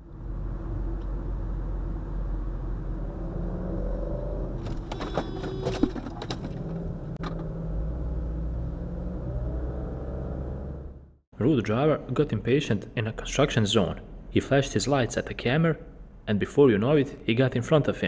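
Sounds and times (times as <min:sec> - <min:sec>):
vehicle road and engine rumble: 0:00.0 - 0:11.4.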